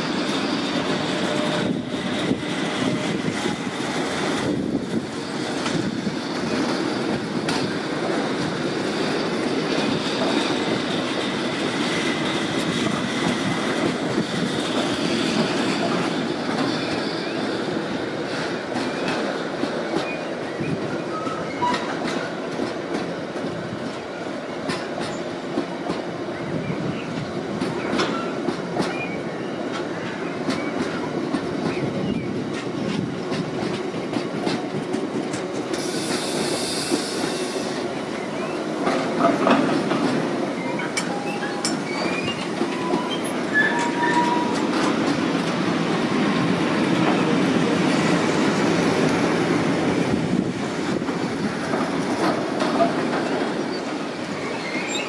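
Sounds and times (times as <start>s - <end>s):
train wheels clicking over rail joints: 0.0s - 26.2s, 27.2s - 55.0s
wheel squeals: 40.6s - 44.9s, 53.7s - 55.0s.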